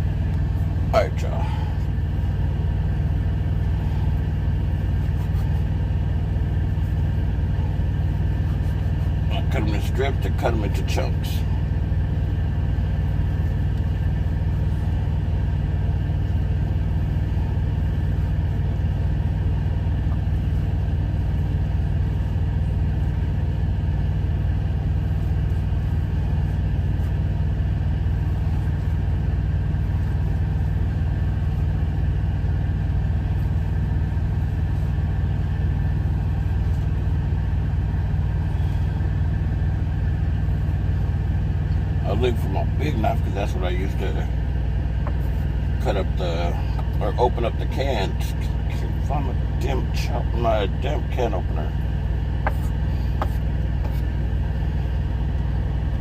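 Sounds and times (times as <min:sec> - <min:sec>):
truck diesel engine idling: 0:00.0 - 0:56.0.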